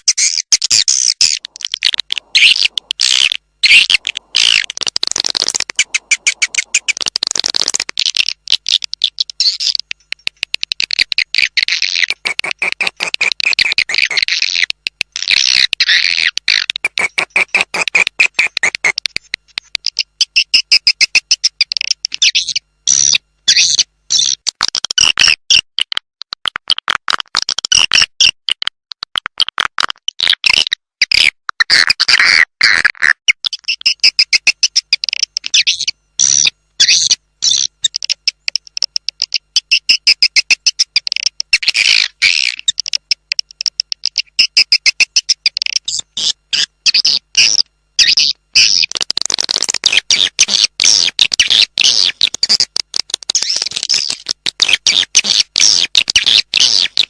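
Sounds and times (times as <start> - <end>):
swiftlet chirps and twitters: 0.0 - 9.9, 10.8 - 19.0, 33.4 - 49.0, 53.3 - 57.0.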